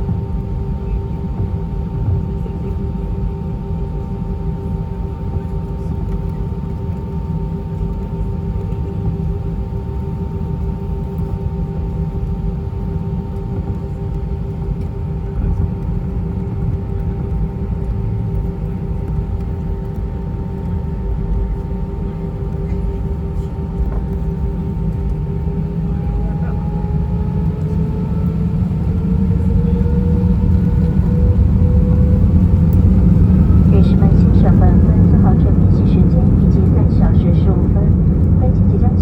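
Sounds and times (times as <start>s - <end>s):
jet engines idling whine: 0.0s - 39.0s
low rumble: 8.5s - 39.0s.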